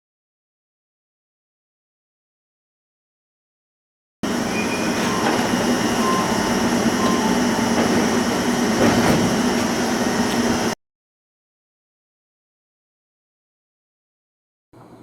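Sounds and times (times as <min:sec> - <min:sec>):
electric train running hum: 0:04.2 - 0:10.8.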